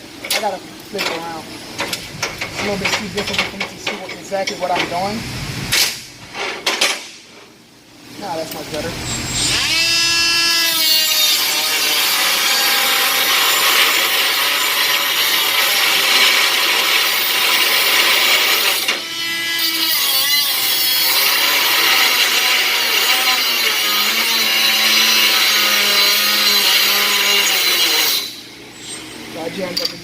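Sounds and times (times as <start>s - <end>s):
die grinder cutting: 9.3s - 28.4s.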